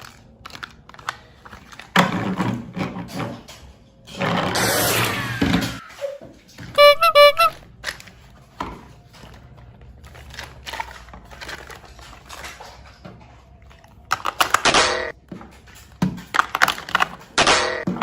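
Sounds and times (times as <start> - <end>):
plastic packaging rustling: 0.0 - 2.7, 7.7 - 17.4
plastic parts rattling and clattering: 0.0 - 4.7, 7.7 - 18.0.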